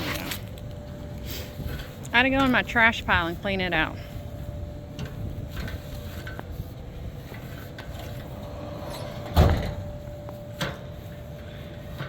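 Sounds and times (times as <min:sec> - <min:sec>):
low hum with rumble: 0:00.0 - 0:12.0
loud thump: 0:09.2 - 0:09.9.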